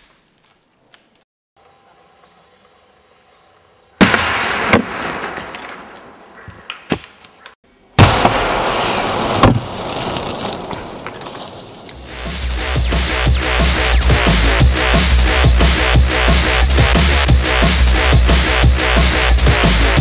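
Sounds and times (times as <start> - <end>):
firework blasts: 4.0 - 6.0, 8.0 - 12.3.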